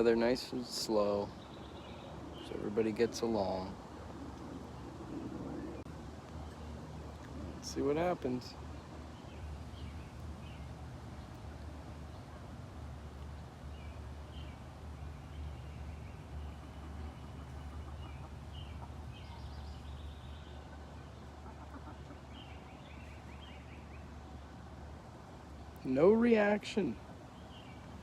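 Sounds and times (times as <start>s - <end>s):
steady low rumble: 0.0s - 25.9s
chickens clucking: 20.5s - 22.7s.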